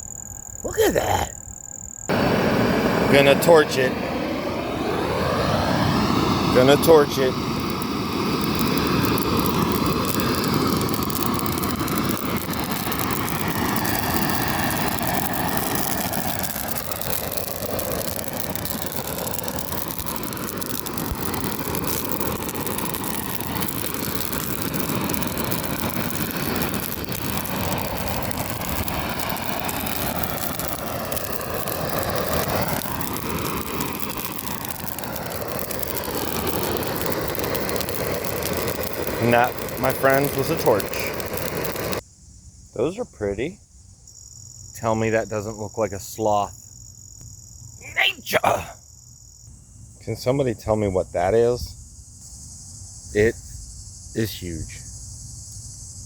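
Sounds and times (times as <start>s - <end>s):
gas torch flame hissing: 0.6s - 42.0s.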